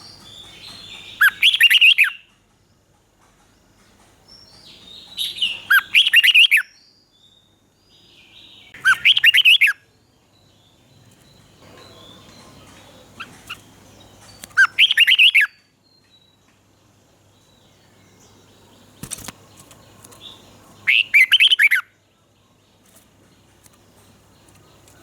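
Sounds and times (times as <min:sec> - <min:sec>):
bird warbling whistled song: 0:00.0 - 0:02.3, 0:04.9 - 0:07.5, 0:08.2 - 0:09.9, 0:11.8 - 0:16.4, 0:20.3 - 0:22.0.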